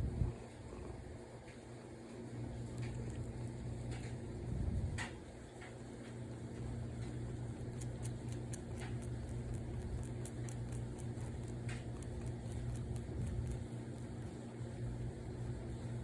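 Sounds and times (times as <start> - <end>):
steady low hum: 0.0 - 16.0
cat suckling wet smacking clicks: 2.6 - 4.3, 4.9 - 14.4.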